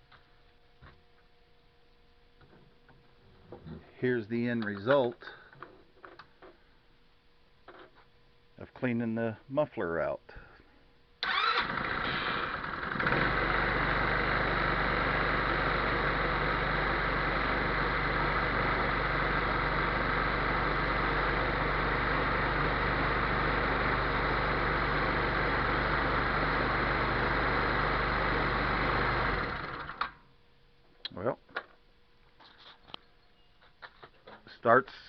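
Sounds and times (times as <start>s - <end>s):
scooter engine idling: 11.3s - 30.0s.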